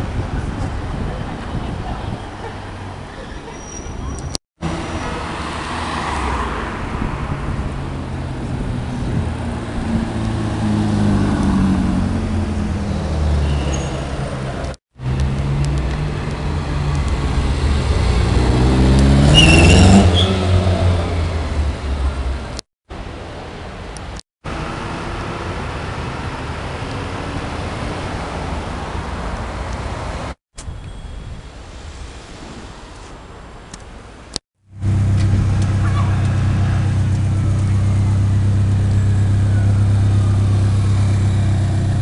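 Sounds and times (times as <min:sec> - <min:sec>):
street traffic: 0:00.0 - 0:42.0
sports car engines accelerating: 0:15.0 - 0:22.6, 0:34.7 - 0:42.0
engine revving hard: 0:17.4 - 0:21.4.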